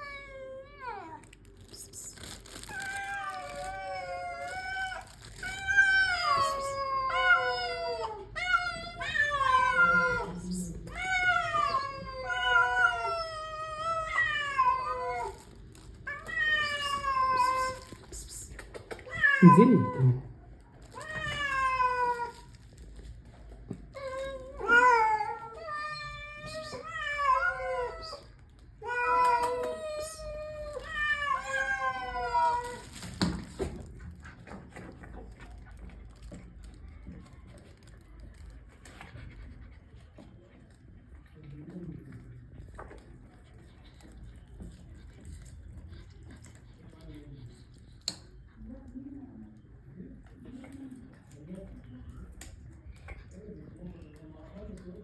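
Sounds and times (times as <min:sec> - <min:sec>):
cats meowing loudly: 0:02.6 - 0:18.0, 0:19.0 - 0:20.3, 0:20.9 - 0:22.5, 0:24.0 - 0:33.7.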